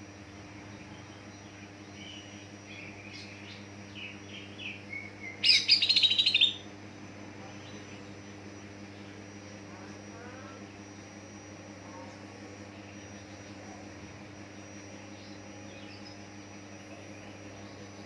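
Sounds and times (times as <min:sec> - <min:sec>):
faint steady hum: 0:00.0 - 0:18.0
bird singing warbled notes: 0:02.0 - 0:06.7
bird rapid chattering: 0:05.4 - 0:06.6.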